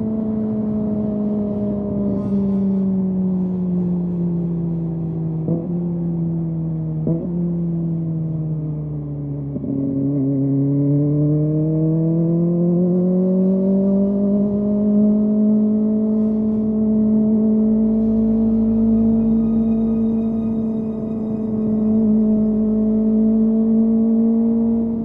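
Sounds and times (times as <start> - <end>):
motorcycle engine revving: 9.5 - 25.0.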